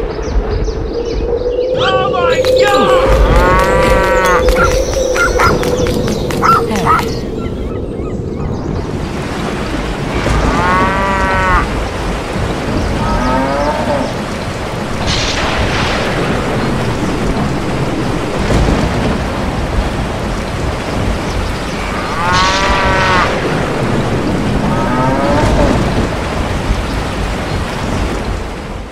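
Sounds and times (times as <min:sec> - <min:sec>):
thunderclap: 0:00.0 - 0:07.7, 0:08.6 - 0:28.9
heavy rain: 0:00.0 - 0:28.9
cows mooing: 0:02.8 - 0:04.8, 0:10.2 - 0:11.7, 0:13.0 - 0:14.2, 0:21.9 - 0:23.3, 0:24.6 - 0:25.8.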